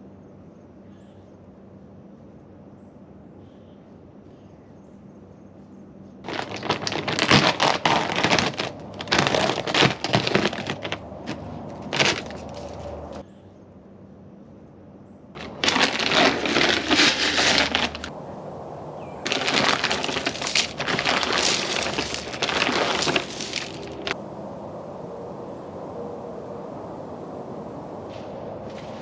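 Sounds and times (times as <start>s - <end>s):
footsteps crunching on ground: 6.2s - 13.2s, 15.4s - 18.2s, 19.0s - 24.2s, 28.0s - 29.0s.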